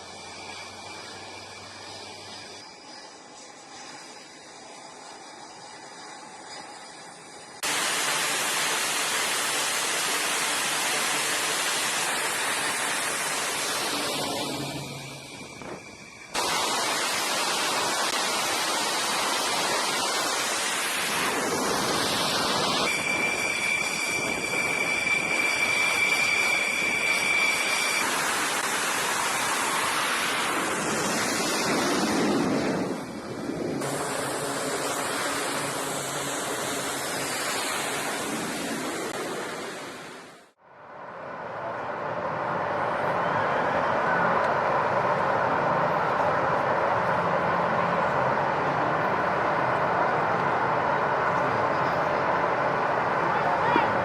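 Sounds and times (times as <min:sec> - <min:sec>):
high whistle-like tone: 0:00.0 - 0:07.7, 0:12.0 - 0:17.0, 0:21.0 - 0:30.6
loud steady rushing noise: 0:00.0 - 0:54.0.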